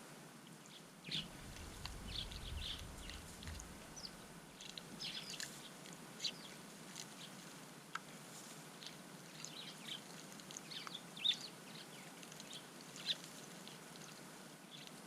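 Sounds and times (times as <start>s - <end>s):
small birds chirping: 0.6s - 15.0s
low rumble: 1.2s - 4.3s.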